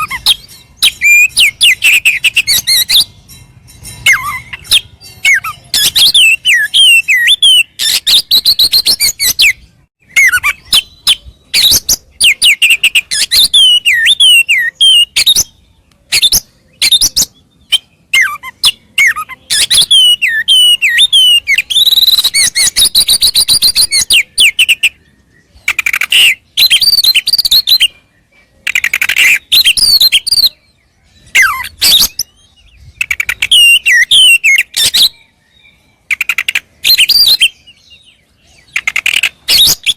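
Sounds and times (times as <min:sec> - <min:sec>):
bird singing fast song: 0:00.0 - 0:39.9.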